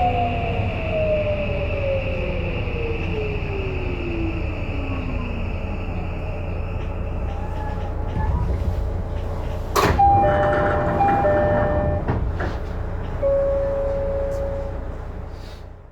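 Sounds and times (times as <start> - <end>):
low rumble in train car: 0.0 - 15.9
train doors operating: 4.9 - 15.8
two-tone door chime: 9.8 - 12.2, 13.2 - 15.0
steady single tone: 13.2 - 15.2.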